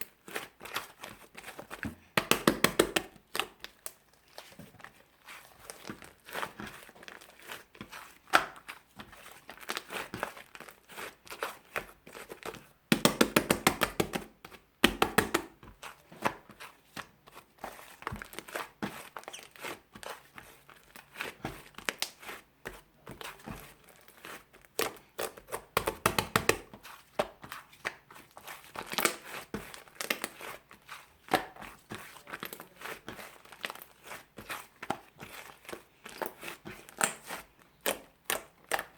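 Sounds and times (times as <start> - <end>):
slime squished by hand: 13.1 - 38.9.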